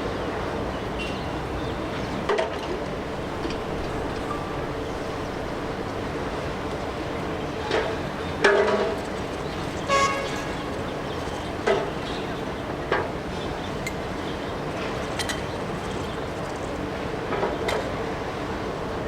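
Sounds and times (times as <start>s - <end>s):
traffic rushing: 0.3s - 17.2s
vehicle horns tooting: 9.9s - 10.6s.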